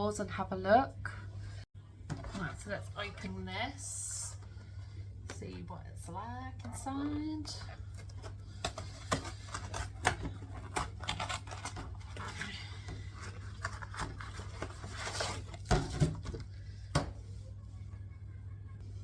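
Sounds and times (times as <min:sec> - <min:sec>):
cardboard and plastic rustling: 0:02.0 - 0:03.5, 0:06.6 - 0:17.5.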